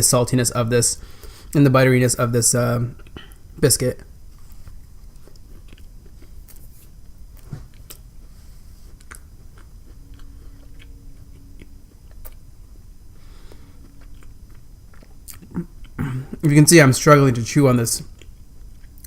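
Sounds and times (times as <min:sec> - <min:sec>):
chewing dry biscuit: 0:04.4 - 0:08.2, 0:08.8 - 0:12.5, 0:13.2 - 0:16.4, 0:18.1 - 0:19.0.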